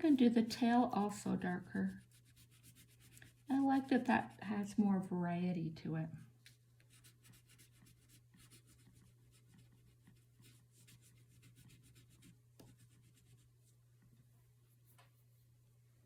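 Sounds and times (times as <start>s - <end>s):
crayon scratching on paper: 1.0s - 4.4s, 6.9s - 13.5s.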